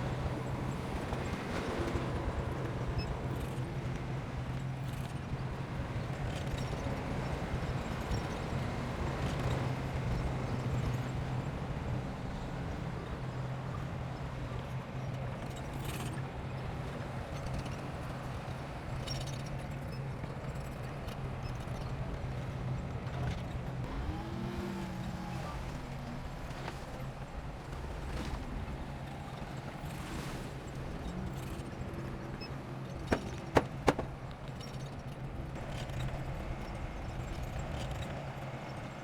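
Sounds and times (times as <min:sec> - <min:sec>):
short knocks: 0:33.1 - 0:34.2
diesel engine humming: 0:33.1 - 0:34.3.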